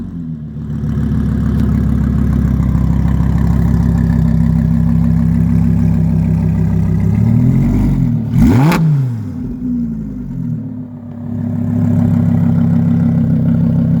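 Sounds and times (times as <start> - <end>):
sports car engine idling: 0.0 - 14.0
engine rev blip: 6.3 - 14.0.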